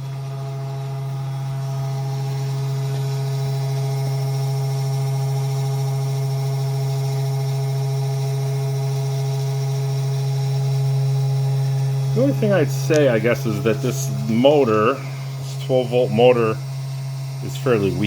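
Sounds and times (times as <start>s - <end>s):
router spindle motor hum: 0.0s - 18.0s
faint high steady tones: 11.7s - 18.0s.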